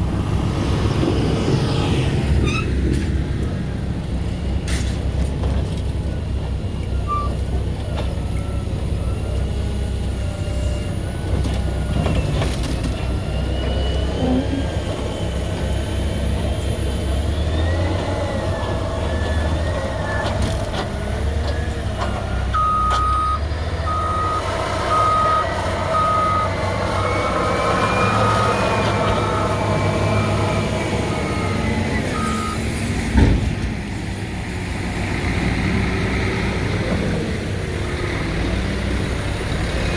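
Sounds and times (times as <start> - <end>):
diesel engine under load: 0.0 - 39.9
reversing alarm beeping: 22.5 - 32.7.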